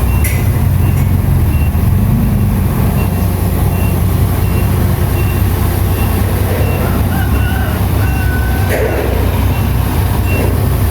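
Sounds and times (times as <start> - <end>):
diesel machine engine rumbling: 0.0 - 10.9
reversing alarm beeps: 0.0 - 10.9
metal clank: 5.9 - 10.9.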